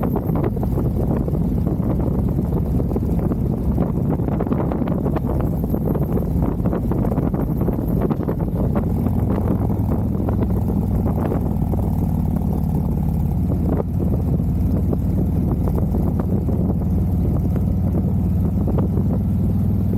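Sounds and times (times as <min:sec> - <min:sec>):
motorcycle engine cruising: 0:00.0 - 0:19.9
wind noise on microphone: 0:00.0 - 0:19.9.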